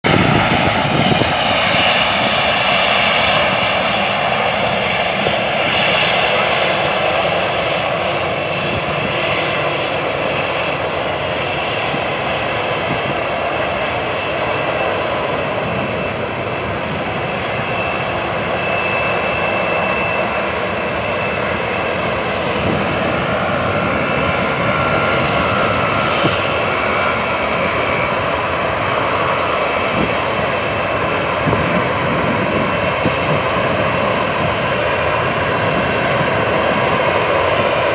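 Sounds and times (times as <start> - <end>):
jet engines running: 0.0 - 37.9.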